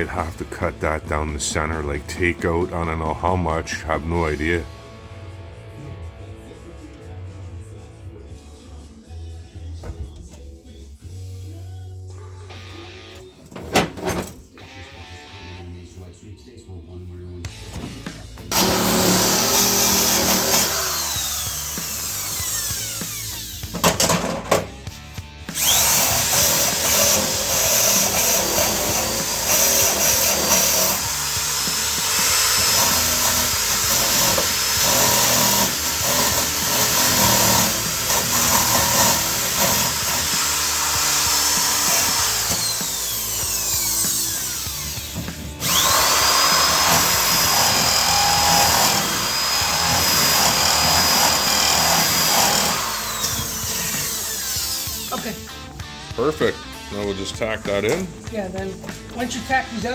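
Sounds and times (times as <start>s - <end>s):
power grinder whining: 18.5s - 24.3s, 25.6s - 56.0s.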